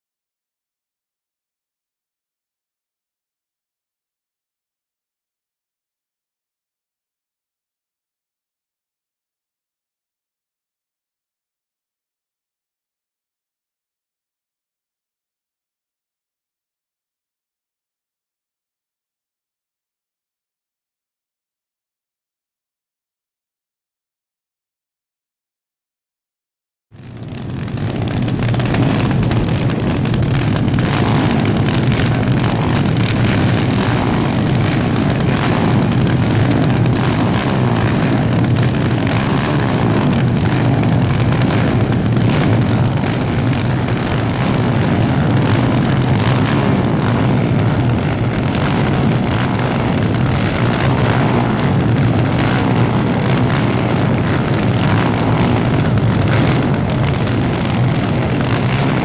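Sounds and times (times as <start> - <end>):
kart engines running hard: 27.0 - 59.0.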